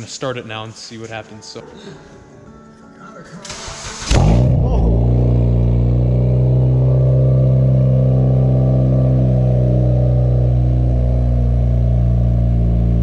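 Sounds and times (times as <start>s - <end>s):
car engine idling: 3.8s - 13.0s.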